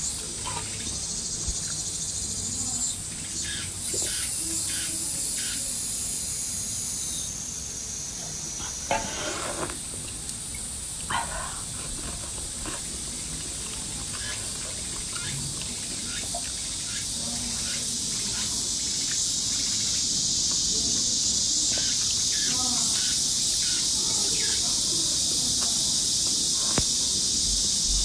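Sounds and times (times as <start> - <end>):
steady high hiss: 0.0 - 11.8, 12.8 - 28.0.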